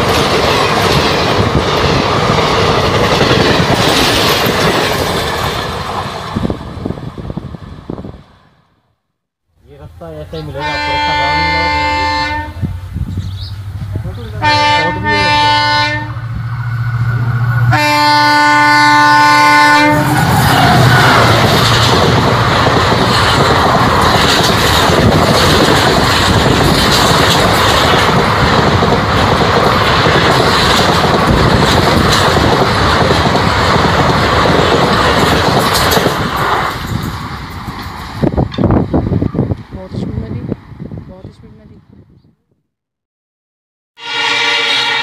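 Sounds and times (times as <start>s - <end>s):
train wheels clattering on rails: 0.0s - 6.6s, 20.1s - 39.0s
locomotive horn blasts: 10.6s - 12.7s, 14.4s - 16.3s, 17.7s - 21.3s, 44.0s - 45.0s.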